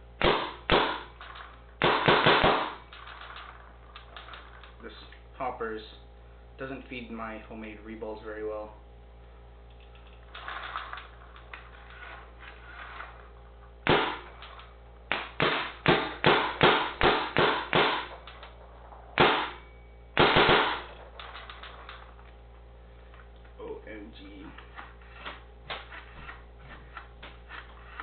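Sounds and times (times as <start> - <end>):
paintball marker firing: 0.2 - 1.1, 1.8 - 2.9, 13.8 - 14.3, 15.1 - 18.4, 19.2 - 19.6, 20.2 - 20.9.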